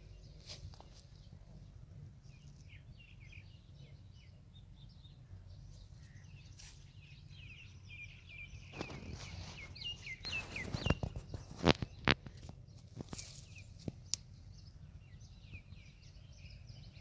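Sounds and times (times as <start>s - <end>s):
low steady rumble: 0.0s - 8.7s, 12.2s - 17.0s
small birds chirping: 0.0s - 17.0s.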